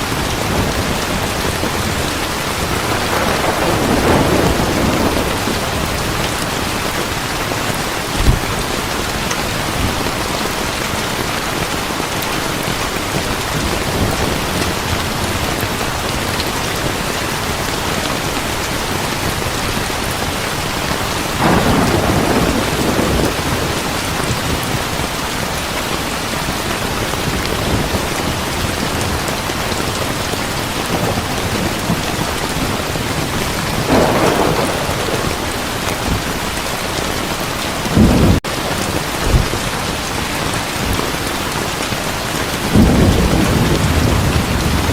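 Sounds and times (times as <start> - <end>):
thunder rumbling: 0.0 - 11.2, 20.1 - 25.5, 26.8 - 40.0, 42.6 - 44.9
heavy rain: 0.0 - 44.9.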